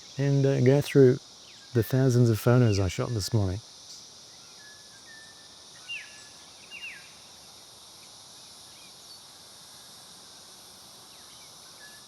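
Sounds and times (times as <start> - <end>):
insects droning: 0.0 - 12.0
small birds chirping: 0.6 - 3.6.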